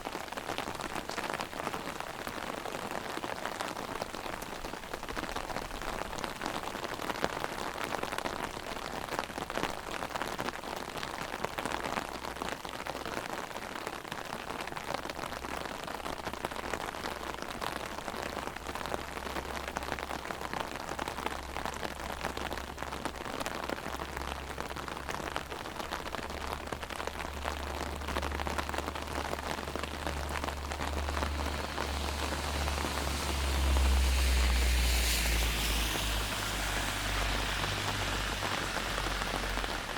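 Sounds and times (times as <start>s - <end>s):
rain drumming on umbrella: 0.0s - 39.9s
low rumble: 27.3s - 39.9s.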